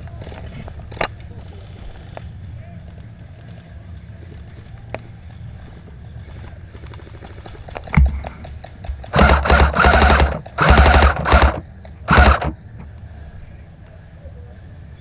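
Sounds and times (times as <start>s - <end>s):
airsoft rifle firing: 9.0s - 12.6s.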